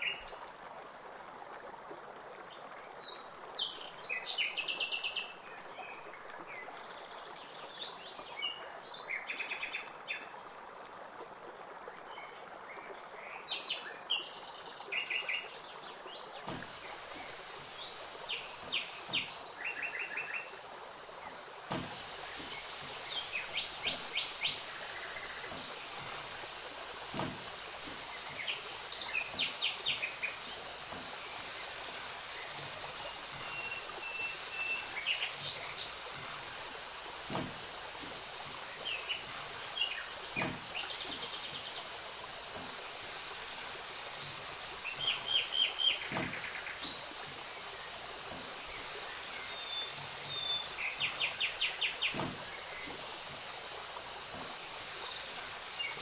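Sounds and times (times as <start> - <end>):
steady hiss: 0.0 - 0.5, 16.3 - 56.0.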